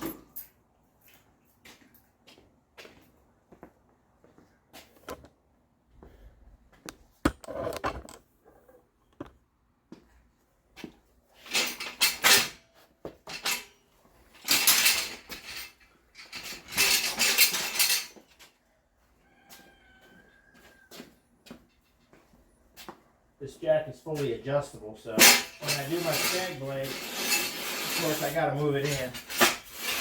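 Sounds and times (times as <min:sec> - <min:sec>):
metal equipment clanking: 0:11.4 - 0:12.6, 0:14.4 - 0:18.2, 0:25.1 - 0:30.0
metal rattling and scraping: 0:11.4 - 0:18.4, 0:25.1 - 0:30.0.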